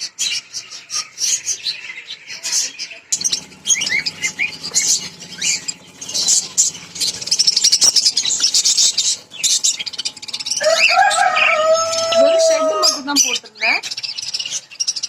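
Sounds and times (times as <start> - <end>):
lovebirds chirping rapidly: 3.2 - 15.0.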